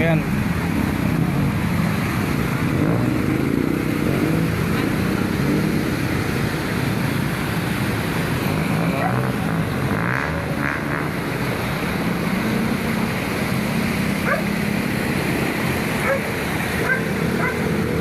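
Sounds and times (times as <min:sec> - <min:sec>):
vehicles driving through flood water: 0:00.0 - 0:18.0.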